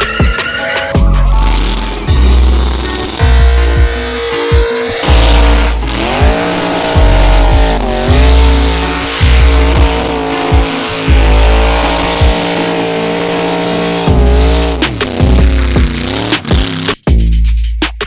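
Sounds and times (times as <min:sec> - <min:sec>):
tyre squeal: 0:00.0 - 0:01.0
car engine revving: 0:00.0 - 0:17.0
music with heavy bass beat: 0:00.0 - 0:18.0.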